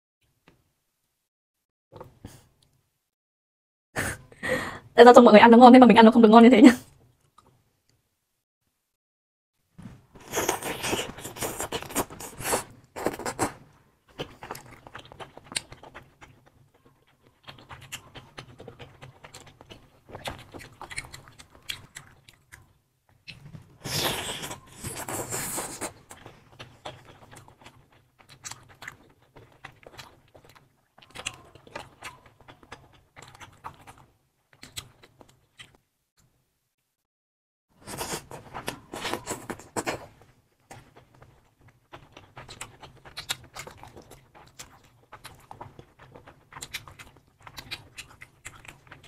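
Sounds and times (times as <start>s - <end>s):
wet mouth noises: 10.2s - 16.6s, 17.2s - 35.8s
chewing and biting food: 10.2s - 35.8s, 37.8s - 49.0s.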